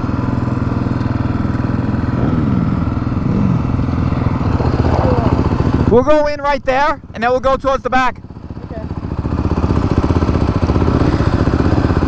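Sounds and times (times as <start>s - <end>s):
dirt bike engine idling: 0.0s - 12.0s
vehicle passing by: 1.9s - 6.1s.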